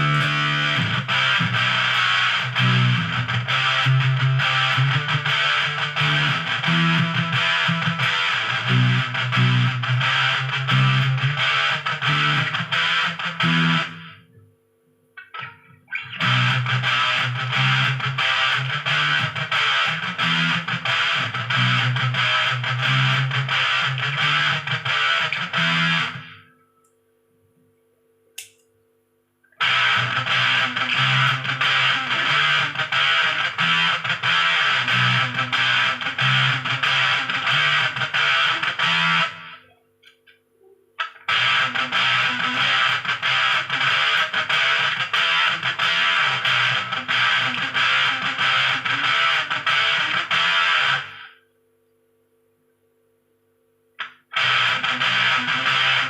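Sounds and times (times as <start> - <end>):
distorted electric guitar riff: 0.0 - 14.4, 15.2 - 26.7, 29.5 - 40.2, 41.0 - 51.4, 54.0 - 56.0
small click: 28.4 - 28.8.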